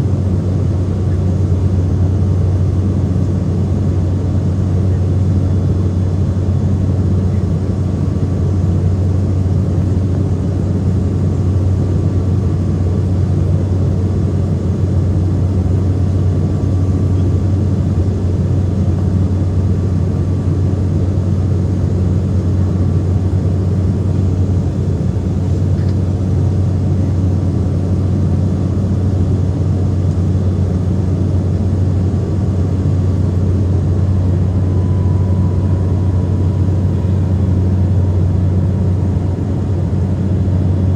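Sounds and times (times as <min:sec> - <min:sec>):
turboprop engines droning: 0:00.0 - 0:40.9
faint high whine: 0:23.1 - 0:40.9.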